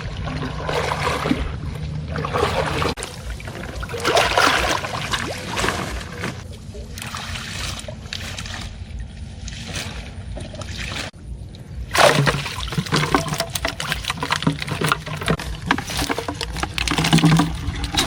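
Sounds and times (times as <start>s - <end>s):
water sloshing and splashing: 0.0s - 18.0s.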